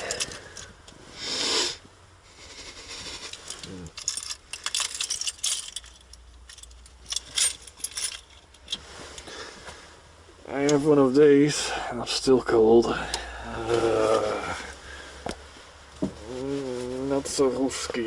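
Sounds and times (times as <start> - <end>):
light clicks and metallic rattles: 0.0 - 1.0, 3.0 - 9.3
short hiss: 1.2 - 1.8.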